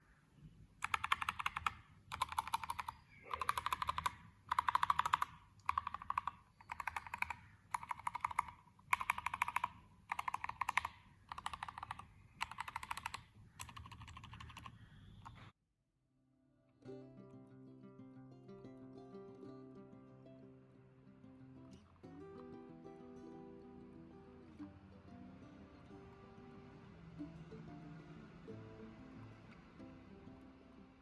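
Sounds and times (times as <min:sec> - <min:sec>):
mechanical keyboard typing: 0:00.8 - 0:15.5.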